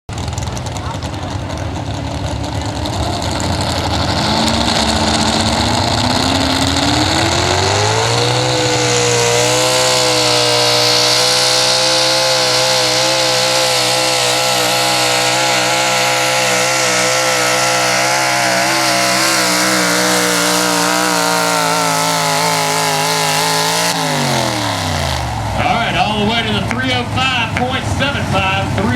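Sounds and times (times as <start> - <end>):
truck engine revving at high rpm: 0.1 - 28.9.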